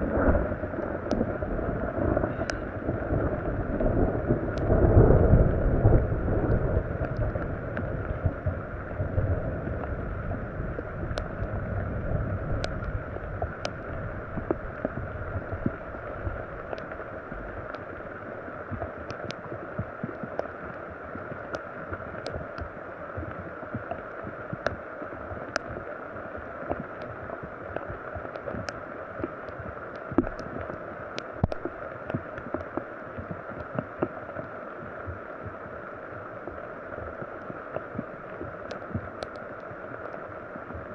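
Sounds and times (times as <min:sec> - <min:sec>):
low rumble: 0:00.0 - 0:18.9
rain falling: 0:00.0 - 0:40.9.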